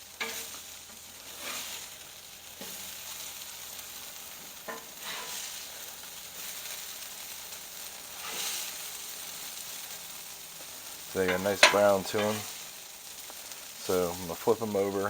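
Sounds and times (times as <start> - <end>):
potatoes sizzling on griddle: 0.0 - 15.0
spatula scraping and tapping griddle: 0.1 - 7.4, 8.0 - 9.0, 10.6 - 13.6.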